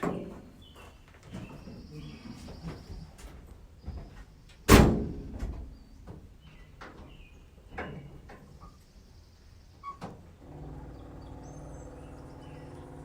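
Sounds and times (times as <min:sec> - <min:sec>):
truck door slamming: 0:04.7 - 0:05.5.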